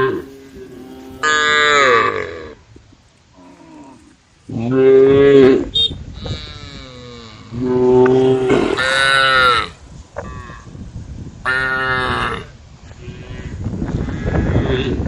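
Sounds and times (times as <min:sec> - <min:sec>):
cows mooing: 0:00.0 - 0:02.6, 0:03.4 - 0:09.7.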